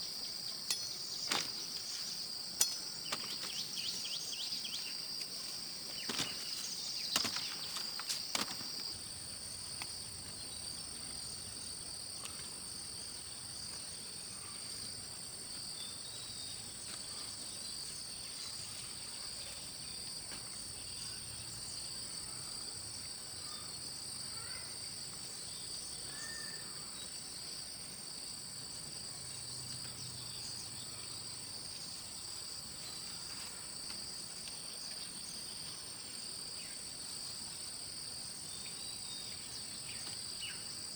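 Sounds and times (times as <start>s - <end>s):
insects shrilling: 0.0s - 9.2s.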